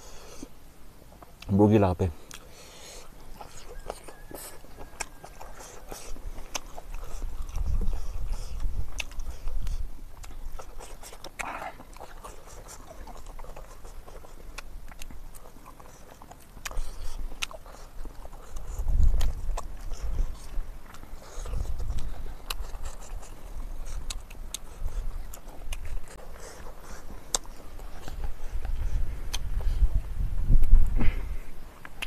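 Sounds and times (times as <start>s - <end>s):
person chewing and lip-smacking: 2.2s - 31.2s
wet mouth clicks: 2.3s - 29.8s, 30.5s - 31.0s, 31.8s - 32.0s.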